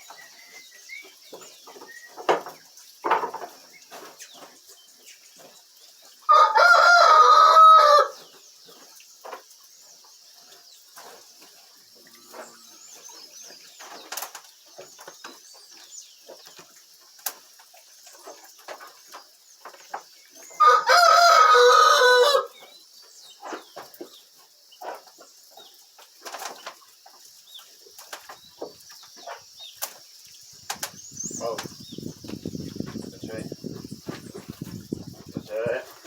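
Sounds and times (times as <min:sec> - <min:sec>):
rooster crowing: 0:06.3 - 0:08.2, 0:20.6 - 0:22.5.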